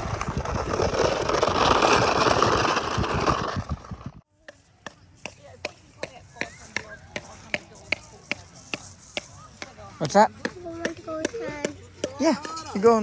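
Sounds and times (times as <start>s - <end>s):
sharp evenly spaced knocks: 4.5s - 13.0s.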